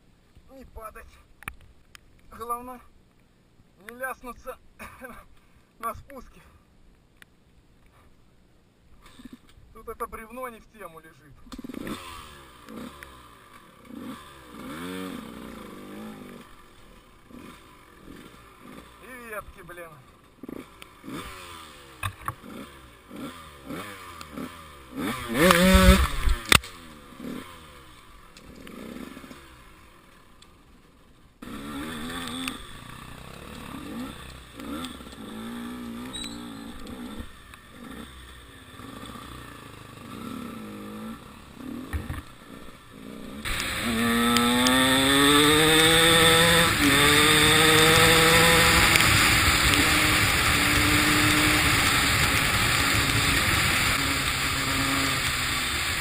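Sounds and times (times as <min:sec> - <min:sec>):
motorcycle engine revving: 0:11.4 - 0:56.0.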